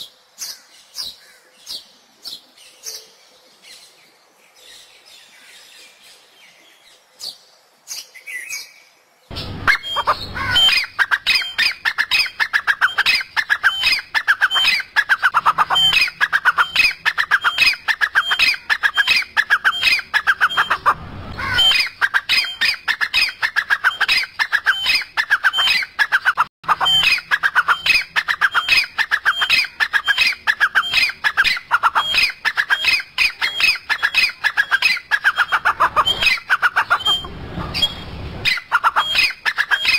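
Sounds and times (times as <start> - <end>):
faint bird chirps: 0.0 - 25.9, 26.7 - 39.9
bird squawking harsh calls: 9.3 - 39.9.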